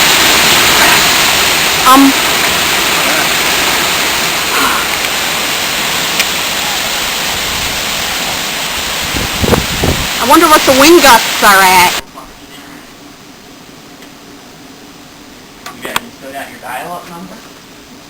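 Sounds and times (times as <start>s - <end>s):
heavy rain: 0.0s - 12.9s
wind: 0.0s - 18.0s.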